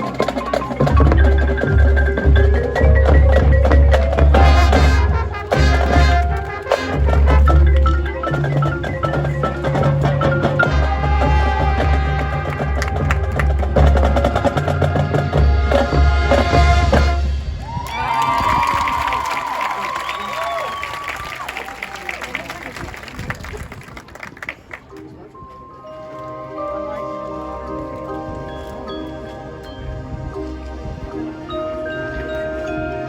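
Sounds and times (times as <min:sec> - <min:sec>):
mallet keyboards: 0:00.0 - 0:17.4, 0:24.7 - 0:33.0
marching band playing: 0:00.0 - 0:23.0
drums: 0:00.0 - 0:23.8.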